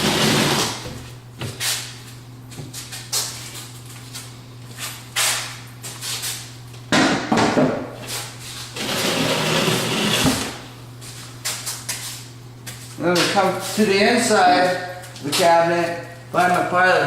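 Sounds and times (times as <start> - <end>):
wood scraping: 0.0 - 1.0, 8.6 - 10.6
steady low hum: 0.0 - 17.0
knocks on wooden cabinet: 6.9 - 7.9.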